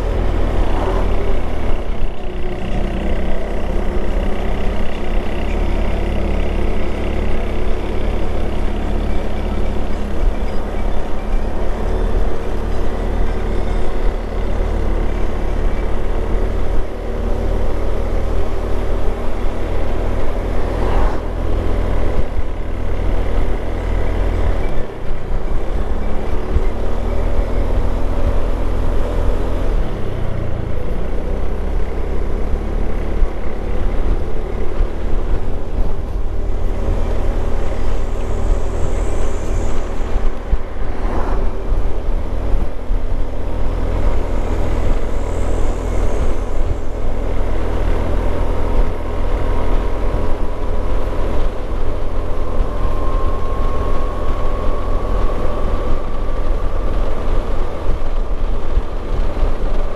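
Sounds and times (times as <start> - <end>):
motorcycle engine running: 0.0 - 59.9
wind rumble on microphone: 18.4 - 59.9.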